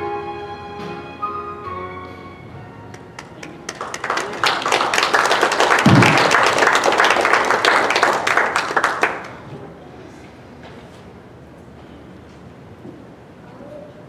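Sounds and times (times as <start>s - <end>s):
congregation applauding: 2.9s - 9.6s.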